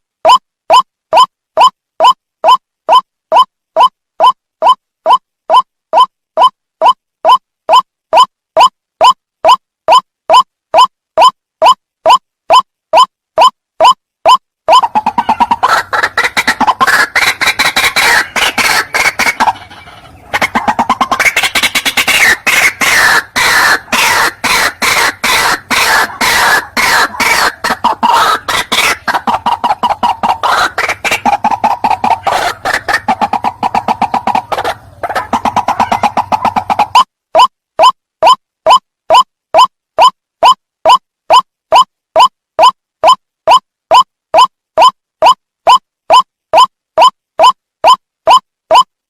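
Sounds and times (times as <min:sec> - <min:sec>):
waterhen harsh croaking calls: 0:14.3 - 0:38.4.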